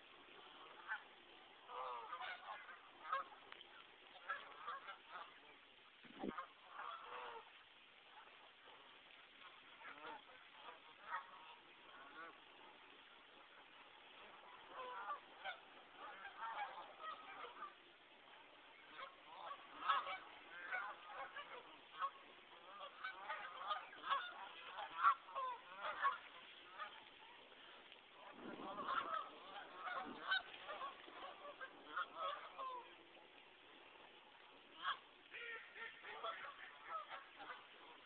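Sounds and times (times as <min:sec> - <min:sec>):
geese honking: 0:00.4 - 0:05.5, 0:06.2 - 0:07.5, 0:08.1 - 0:33.2, 0:34.7 - 0:38.0.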